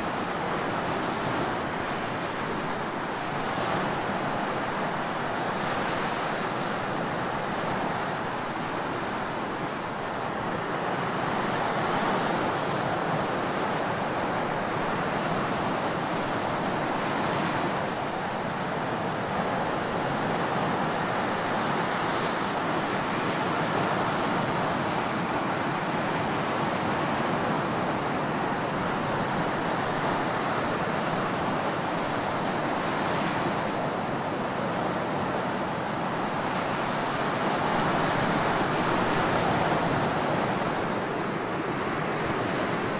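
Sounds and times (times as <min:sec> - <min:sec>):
ocean waves breaking: 0:00.0 - 0:42.9.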